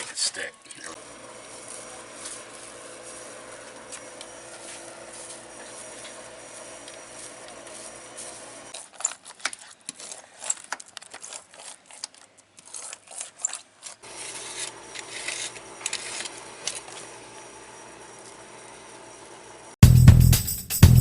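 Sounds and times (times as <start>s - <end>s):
roller rubbing and clicking on fiberglass: 1.6s - 17.0s.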